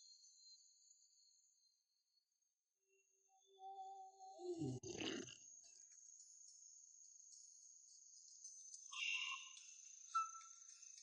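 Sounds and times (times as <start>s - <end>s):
insects chirring: 5.0s - 11.0s.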